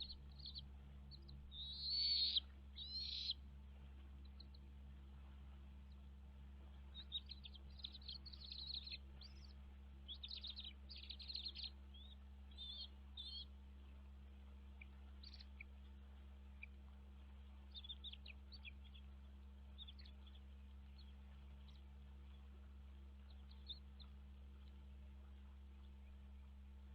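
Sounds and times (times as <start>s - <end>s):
bird chirping: 0.0s - 3.4s, 4.2s - 4.6s, 6.8s - 14.0s, 14.6s - 24.9s
steady low hum: 0.0s - 26.9s.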